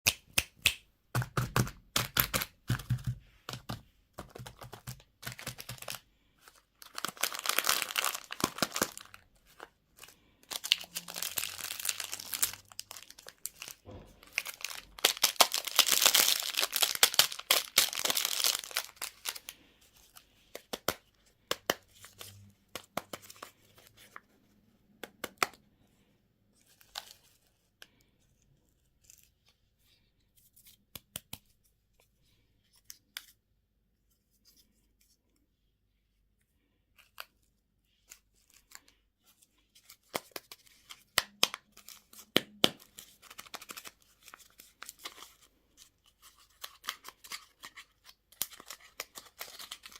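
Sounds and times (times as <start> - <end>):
wrapper packaging crinkling and tearing: 4.3 - 21.0, 39.8 - 49.9.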